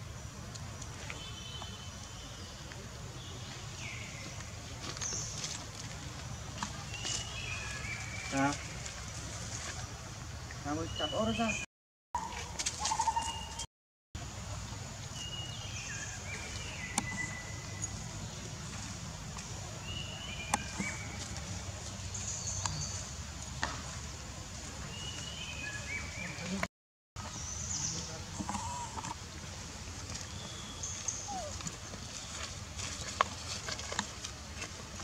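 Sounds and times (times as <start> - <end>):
bird calling: 28.4 - 29.2, 30.4 - 31.8.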